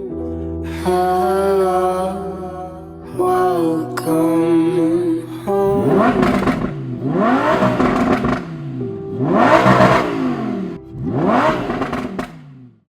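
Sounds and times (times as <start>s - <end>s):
car engine revving: 5.5s - 12.9s.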